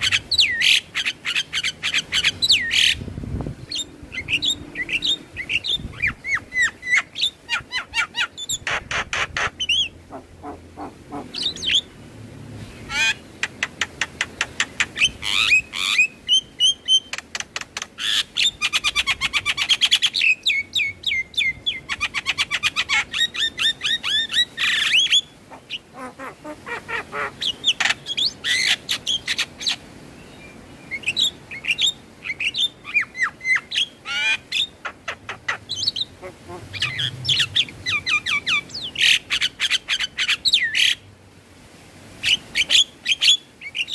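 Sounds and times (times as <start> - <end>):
bird singing clicks and whistles: 16.9 - 18.0.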